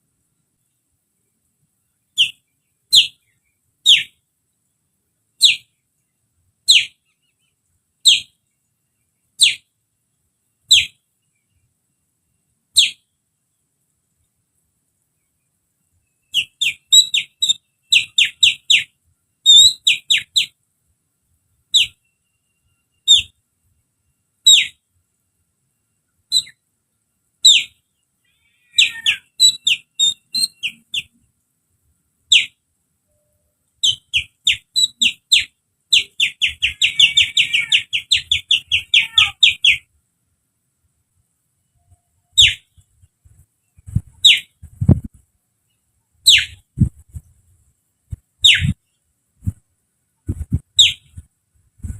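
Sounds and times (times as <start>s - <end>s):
finger whistling birdsong: 16.4s - 18.9s, 26.3s - 26.6s, 33.8s - 39.8s, 42.4s - 42.7s, 48.4s - 48.8s, 50.5s - 51.2s.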